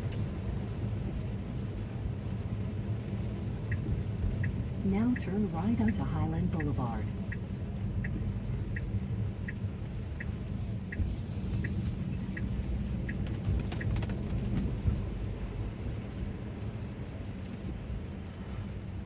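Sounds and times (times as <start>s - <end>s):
road and tyre noise: 0.0s - 19.0s
turn signal ticking: 2.4s - 15.9s.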